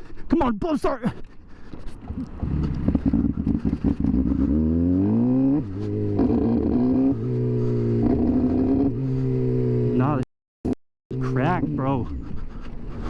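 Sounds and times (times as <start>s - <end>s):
motorcycle engine revving: 2.1s - 12.3s.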